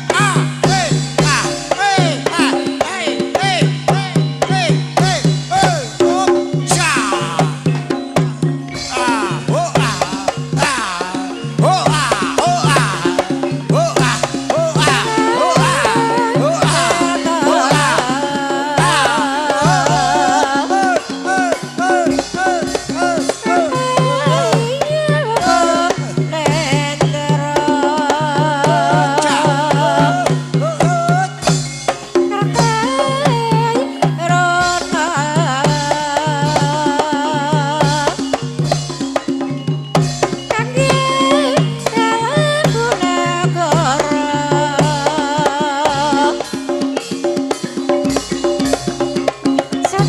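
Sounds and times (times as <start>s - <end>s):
person singing ornamented melody: 0.0s - 38.7s, 40.3s - 50.0s
gamelan music: 0.0s - 50.0s
hand drum pattern: 0.0s - 50.0s.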